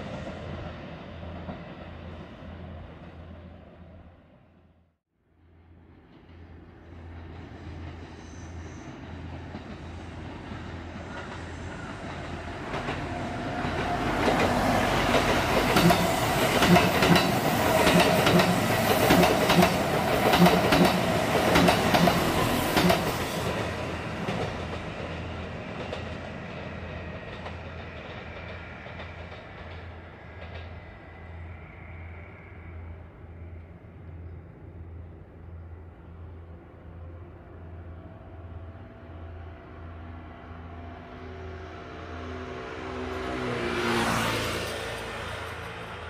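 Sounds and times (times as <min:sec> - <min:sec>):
electric train whine: 0:05.6 - 0:46.0
wheels clacking over rail joints: 0:09.3 - 0:30.9.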